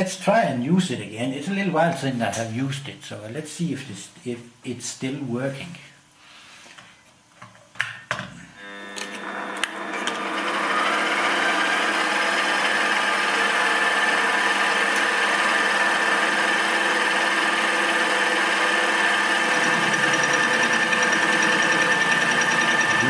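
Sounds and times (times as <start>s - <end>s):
milling machine spindle whine: 8.7s - 23.0s.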